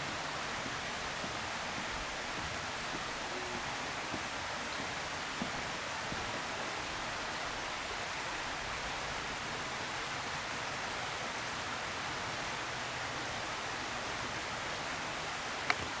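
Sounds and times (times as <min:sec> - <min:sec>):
outdoor hiss: 0:00.0 - 0:16.0
sharp click: 0:15.7 - 0:16.0.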